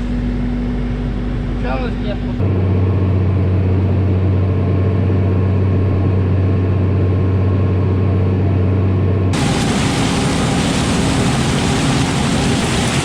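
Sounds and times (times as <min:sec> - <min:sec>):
engine droning: 0:00.0 - 0:13.0
broad rushing noise: 0:09.4 - 0:13.0.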